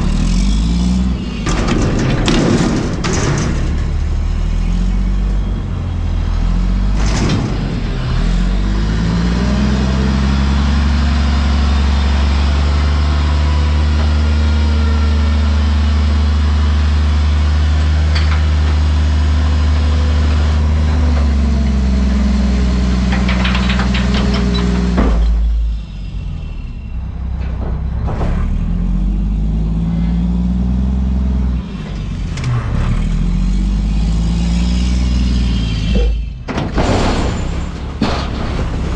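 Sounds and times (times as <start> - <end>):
garbage truck diesel engine revving: 0.0 - 38.9
rattling clatter: 1.4 - 4.2, 23.0 - 25.5, 27.2 - 29.0, 36.0 - 38.9.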